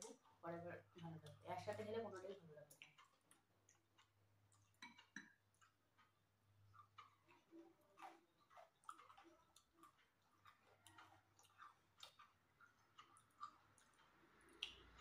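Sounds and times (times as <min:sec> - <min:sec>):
people chewing: 0:00.0 - 0:15.0
mouth clicks and smacks: 0:06.7 - 0:15.0.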